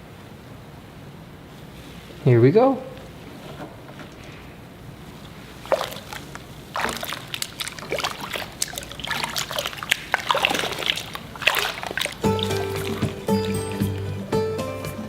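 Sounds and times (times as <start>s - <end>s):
bath water splashing: 5.0s - 15.0s
music: 12.2s - 15.0s.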